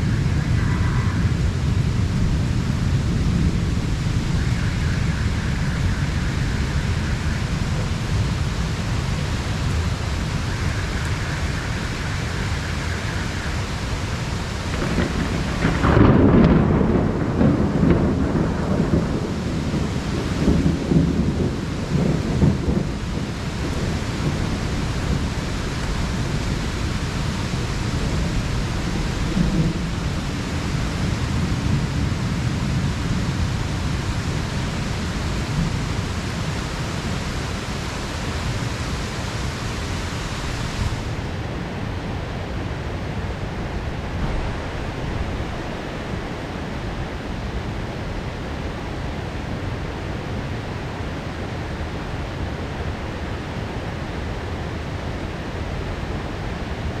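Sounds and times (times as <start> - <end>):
low rumble of thunder: 0.0 - 50.7
heavy rain pouring: 0.0 - 57.0.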